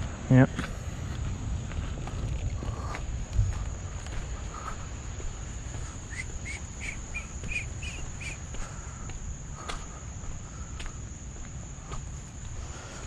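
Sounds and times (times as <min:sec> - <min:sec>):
insects trilling: 0:00.0 - 0:13.0
low rumble: 0:00.8 - 0:05.2
bird chirping: 0:06.1 - 0:08.4.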